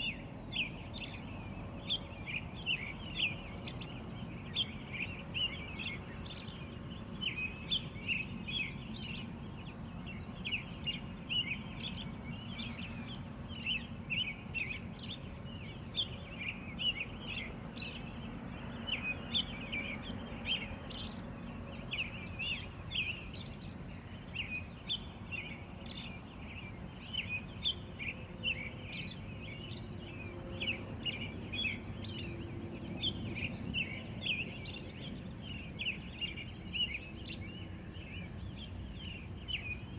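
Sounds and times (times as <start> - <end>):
birds chirping: 18.9 - 39.9.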